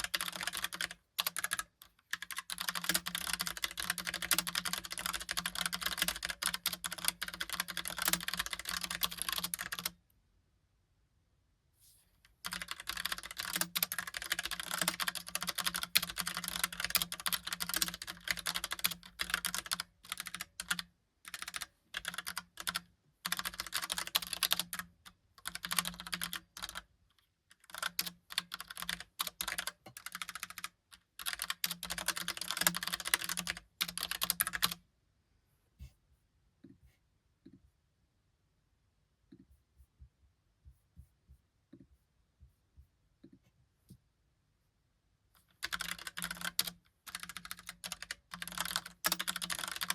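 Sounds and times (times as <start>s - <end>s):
mechanical keyboard typing: 0.0s - 10.0s, 12.4s - 26.9s, 27.5s - 34.8s, 45.6s - 49.9s.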